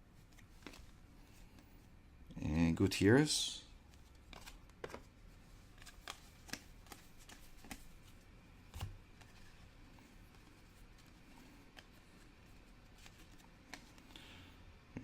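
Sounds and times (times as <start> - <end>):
trading cards being flipped: 0.3 - 0.9, 3.9 - 5.1, 5.7 - 8.0.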